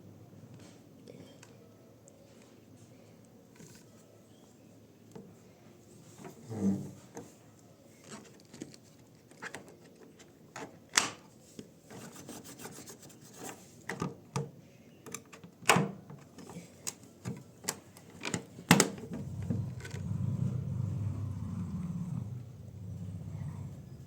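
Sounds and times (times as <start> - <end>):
faint rubbing: 19.0 - 24.0.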